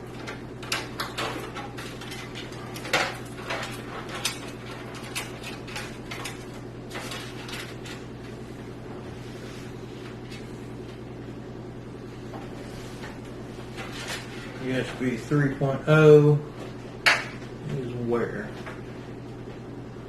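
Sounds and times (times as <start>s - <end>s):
cables rustling in computer case: 0.0s - 8.5s, 12.6s - 15.2s.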